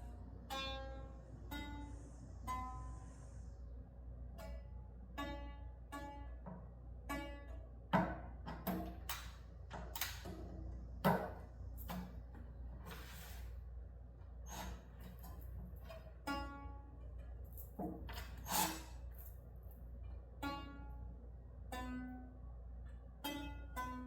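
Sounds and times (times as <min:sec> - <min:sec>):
plucked string notes: 0:00.0 - 0:02.9, 0:04.4 - 0:09.1, 0:15.9 - 0:17.3, 0:20.3 - 0:22.4, 0:23.2 - 0:24.0.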